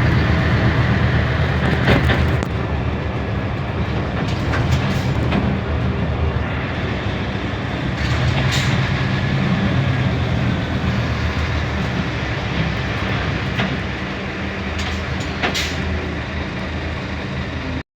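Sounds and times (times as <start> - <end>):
bus engine drone: 0.0 - 17.8
sharp clicks and rattles: 1.4 - 6.0.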